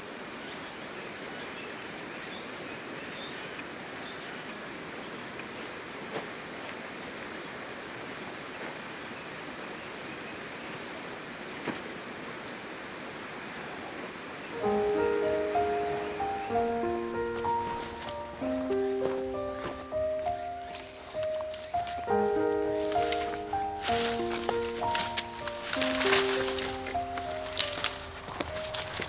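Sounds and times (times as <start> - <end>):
stream water flowing: 4.7 - 29.0
faint clicks: 17.0 - 29.0.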